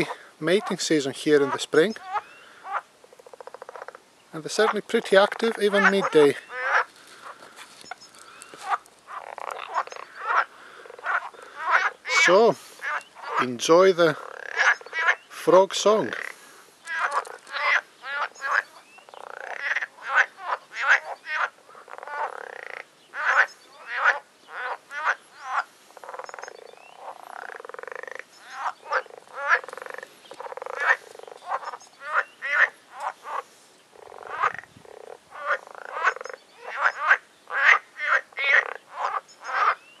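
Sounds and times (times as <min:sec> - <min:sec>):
frogs croaking: 0:00.0 - 0:40.0.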